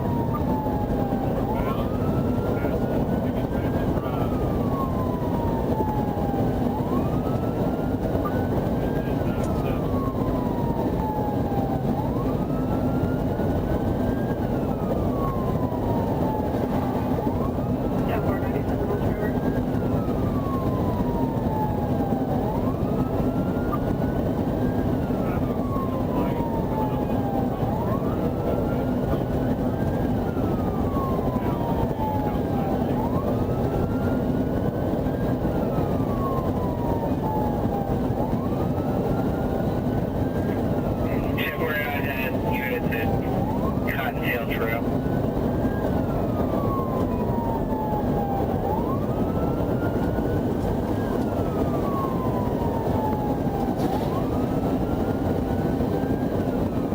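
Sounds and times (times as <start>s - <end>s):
police siren wailing: 0.0s - 56.9s
vehicle and road rumble: 0.0s - 56.9s.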